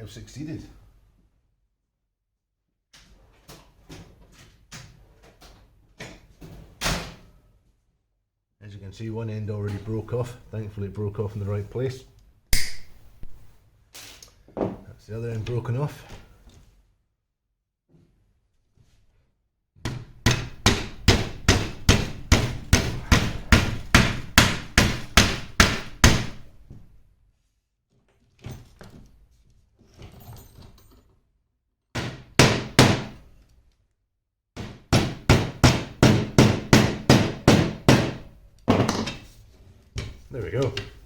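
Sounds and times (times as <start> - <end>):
hammer blows: 20.7 - 26.3.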